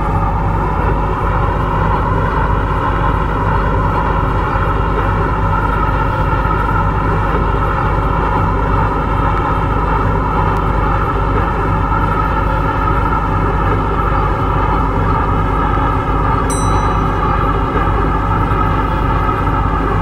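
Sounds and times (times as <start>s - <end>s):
train traction hum: 9.9s - 20.0s.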